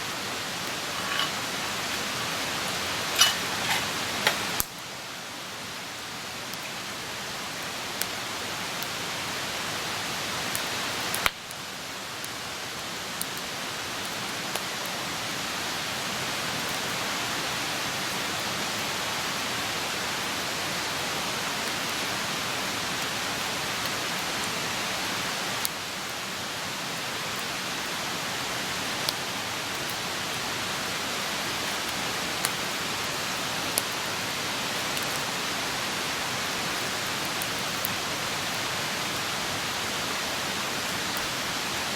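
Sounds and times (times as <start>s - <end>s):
campfire hissing: 0.0s - 41.9s
fire popping and crackling: 0.7s - 4.8s.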